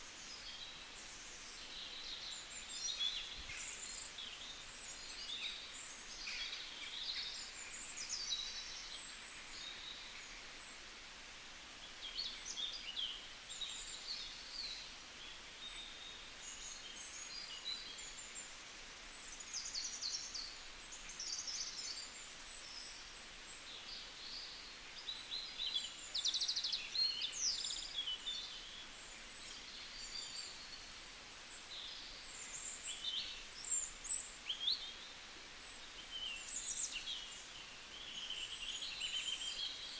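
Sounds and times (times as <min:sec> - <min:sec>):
faint steady hiss: 0:00.0 - 0:39.9
songbirds chirping and singing: 0:23.7 - 0:39.9.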